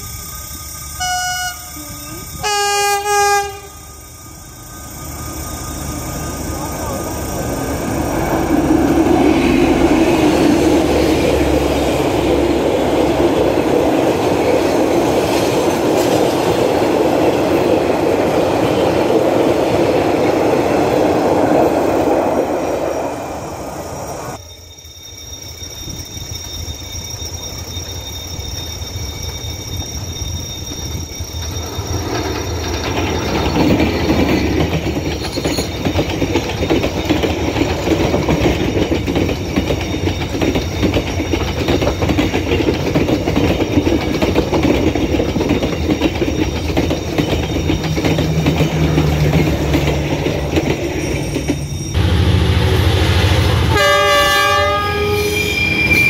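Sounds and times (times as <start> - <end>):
train wheels on rails: 0.0 - 56.0
locomotive horn chord: 1.0 - 3.9, 52.0 - 55.5.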